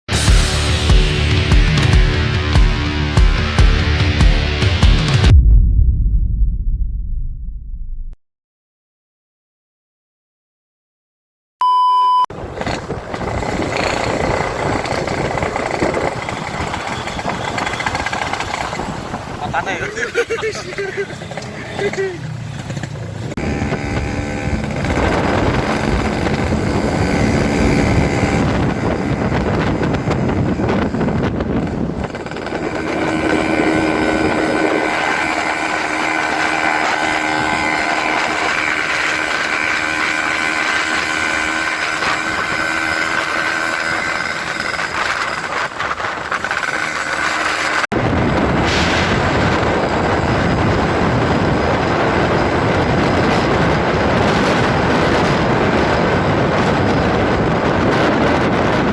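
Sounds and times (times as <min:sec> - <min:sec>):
motorcycle engine running: 0:00.1 - 0:05.4, 0:12.3 - 0:58.9.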